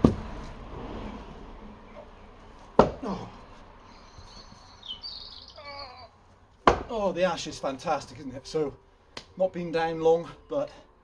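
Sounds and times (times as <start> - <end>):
low background noise: 0.0 - 11.0
wooden log knock: 2.8 - 3.2, 6.6 - 7.0.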